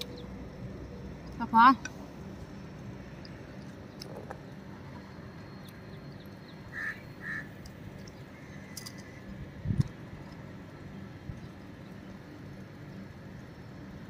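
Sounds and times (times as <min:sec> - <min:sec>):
low background hum: 0:00.0 - 0:14.0
bird calls: 0:05.5 - 0:09.3.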